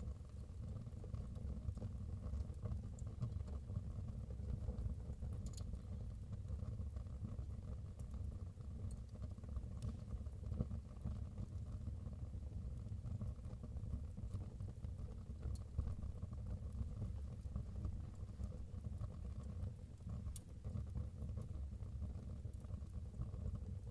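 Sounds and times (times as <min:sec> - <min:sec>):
fire crackles and pops: 0:07.4 - 0:11.6.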